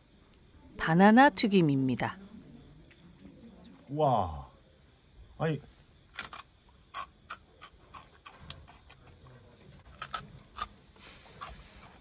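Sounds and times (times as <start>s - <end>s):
crunching fried fritter: 6.1s - 12.0s.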